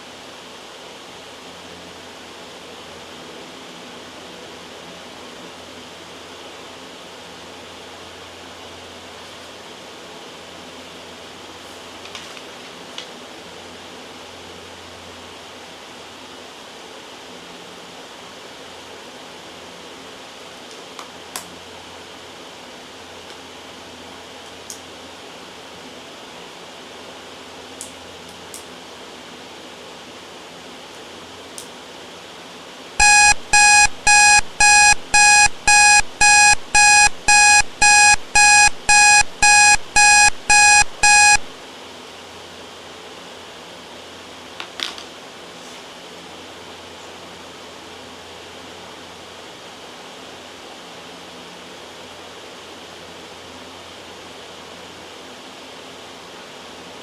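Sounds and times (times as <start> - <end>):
white noise: 26.7 - 44.5
timer beeping: 33.0 - 41.5.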